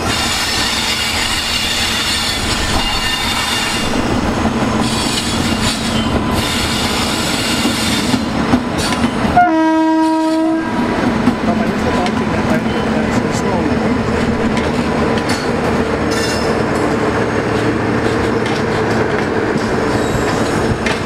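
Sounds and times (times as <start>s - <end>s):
electric train passing: 0.0s - 21.0s
train horn: 9.3s - 10.8s.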